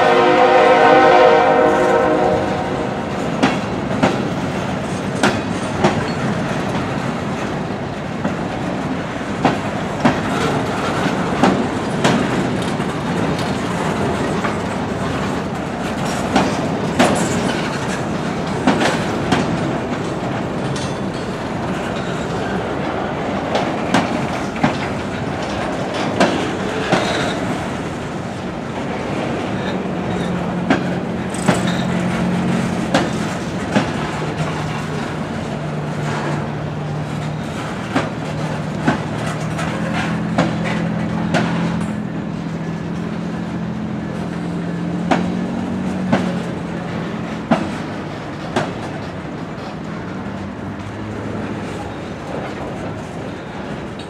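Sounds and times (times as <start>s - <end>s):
steel wheels rumbling on rail: 0.0s - 54.0s
wheels clacking over rail joints: 0.1s - 54.0s.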